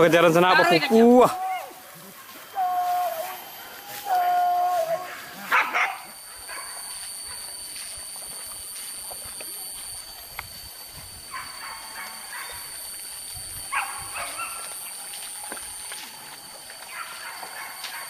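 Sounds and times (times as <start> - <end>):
high-pitched hum: 0.0 - 18.0
dogs yelping: 0.4 - 8.2, 11.3 - 12.9, 13.6 - 15.5, 16.6 - 18.0.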